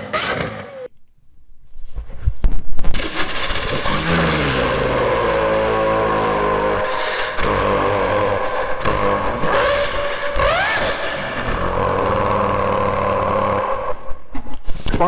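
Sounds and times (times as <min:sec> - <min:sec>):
person imitating engine with mouth: 0:03.0 - 0:15.0.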